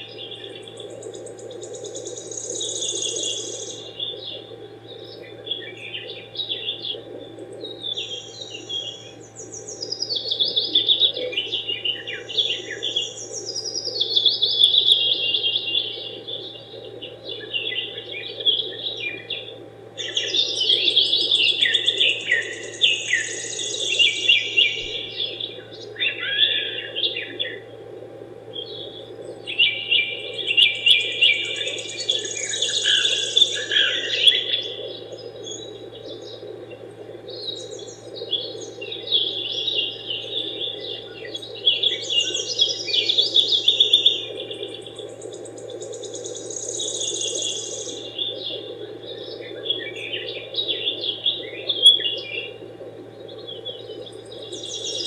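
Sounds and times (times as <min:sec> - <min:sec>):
small birds chirping and trilling: 0:00.0 - 0:07.1, 0:07.7 - 0:27.6, 0:28.6 - 0:36.4, 0:37.3 - 0:52.6, 0:53.3 - 0:55.0.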